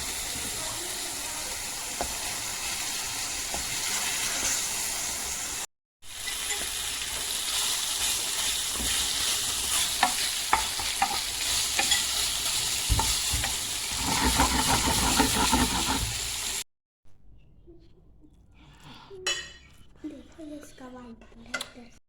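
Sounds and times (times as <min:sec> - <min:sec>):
food sizzling in a frying pan: 0:00.0 - 0:16.6
utensil scraping a pan: 0:08.0 - 0:16.6.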